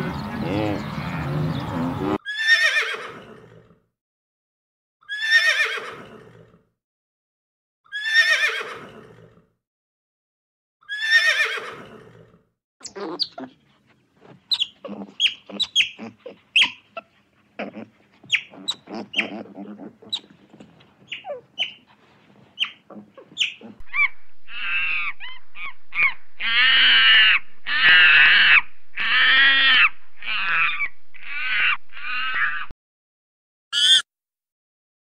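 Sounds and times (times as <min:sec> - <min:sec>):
birds chirping: 0:00.0 - 0:02.2, 0:12.8 - 0:17.0, 0:18.2 - 0:21.9, 0:22.5 - 0:32.7
harsh bird calls: 0:14.5 - 0:16.8, 0:22.6 - 0:32.7, 0:33.8 - 0:34.0.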